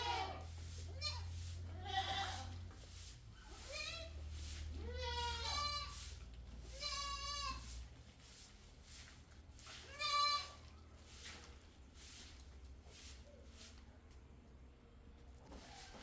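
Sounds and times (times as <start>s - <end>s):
goats bleating: 0.0s - 2.5s, 3.6s - 4.2s, 4.8s - 6.0s, 6.7s - 7.7s, 9.9s - 10.6s.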